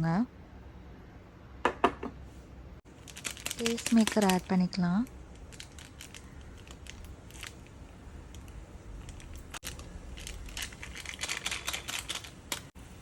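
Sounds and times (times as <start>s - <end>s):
sachet crinkling: 2.9s - 12.8s.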